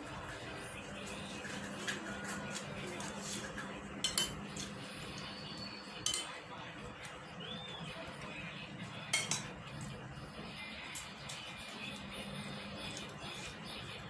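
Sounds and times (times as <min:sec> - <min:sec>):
cutlery clinking on a plate: 0:04.0 - 0:04.8, 0:06.0 - 0:06.4, 0:09.1 - 0:09.6.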